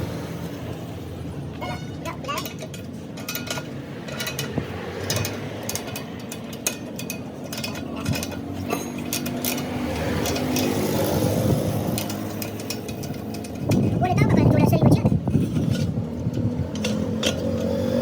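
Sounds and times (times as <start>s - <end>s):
metal knocks and clinks: 1.6s - 14.0s.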